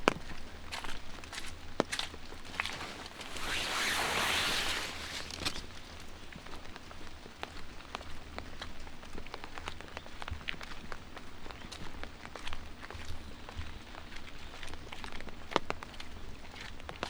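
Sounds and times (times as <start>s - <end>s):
footsteps on wet pavement: 0.1s - 3.4s
light rain pattering: 0.1s - 17.0s
rushing hiss: 2.6s - 5.4s.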